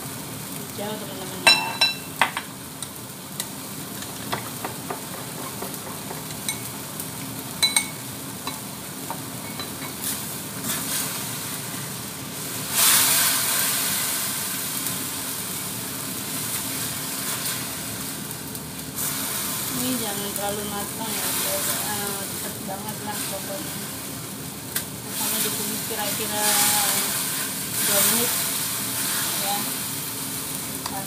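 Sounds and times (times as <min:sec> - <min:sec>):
tomatoes sizzling in hot oil: 0:00.0 - 0:31.0
spatula stirring: 0:04.0 - 0:06.7.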